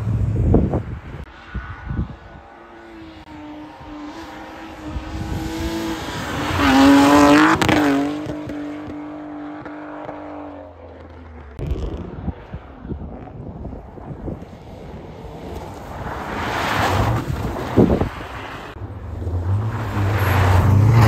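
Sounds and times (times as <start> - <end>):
car engine revving: 3.0 - 13.5.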